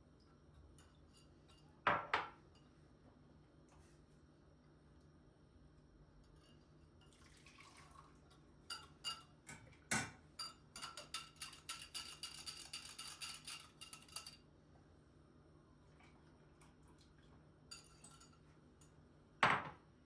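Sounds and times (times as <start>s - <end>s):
cutlery clinking on glassware: 8.7s - 14.4s, 17.7s - 19.0s.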